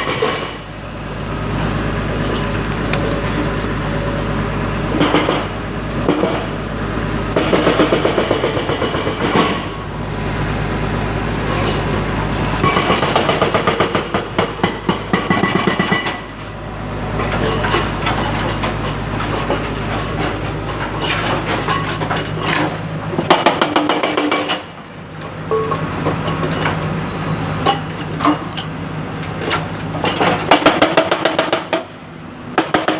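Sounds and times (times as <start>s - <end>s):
metallic clanking and rattling: 0.0s - 0.7s, 4.9s - 6.6s, 12.6s - 16.6s, 17.2s - 26.9s, 29.3s - 31.9s
heavy machine diesel engine running: 0.0s - 32.9s.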